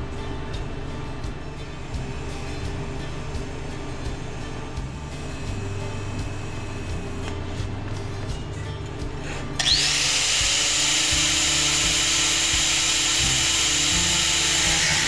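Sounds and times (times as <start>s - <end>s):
power tool whining: 9.2s - 15.0s.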